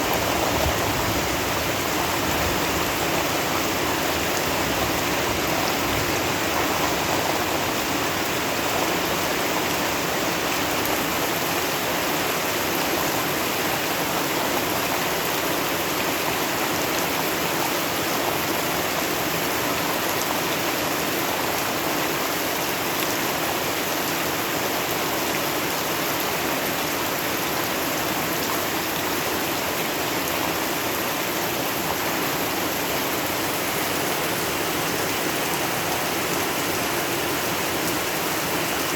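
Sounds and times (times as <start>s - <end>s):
steady rain: 0.0s - 38.9s
running water: 25.4s - 38.9s.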